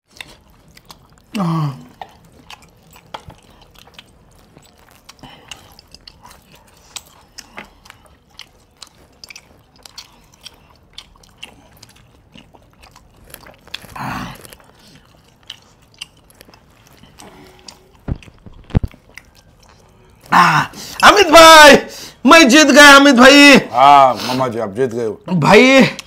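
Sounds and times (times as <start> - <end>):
man chewing with wet smacks: 0.0 - 21.0
sharp thumps: 18.0 - 19.0.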